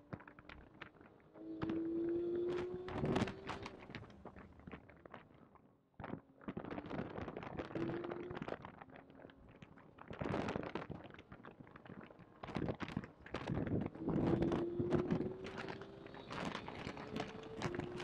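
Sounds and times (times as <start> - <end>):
car engine accelerating: 1.4 - 4.0, 13.8 - 18.0.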